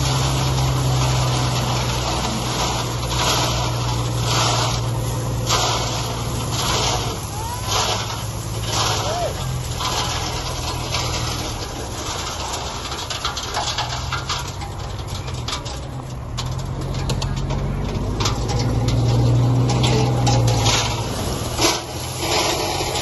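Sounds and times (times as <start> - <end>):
heavy machine engine running: 0.0 - 23.0
clicks and knocks: 7.7 - 23.0.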